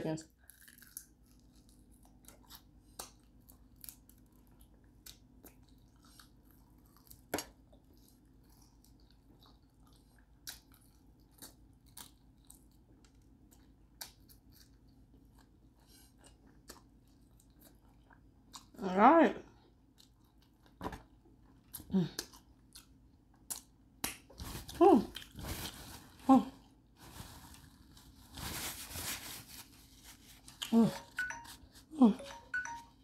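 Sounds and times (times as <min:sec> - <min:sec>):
chewing crispy chicken: 0:00.3 - 0:18.8, 0:19.5 - 0:26.7.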